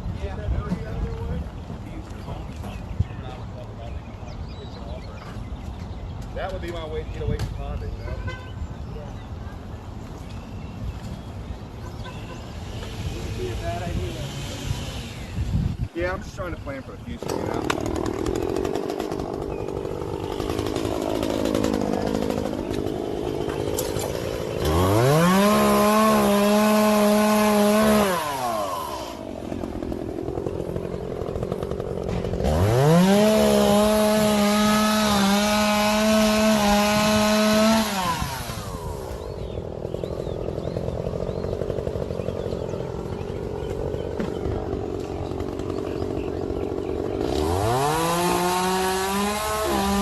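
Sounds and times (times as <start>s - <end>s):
chainsaw idling and revving: 12.5s - 50.0s.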